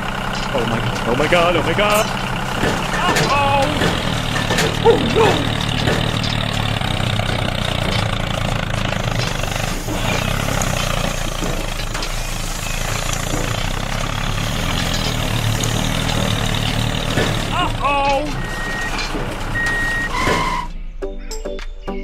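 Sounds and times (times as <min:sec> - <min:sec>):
heavy vehicle engine running: 0:00.0 - 0:21.0.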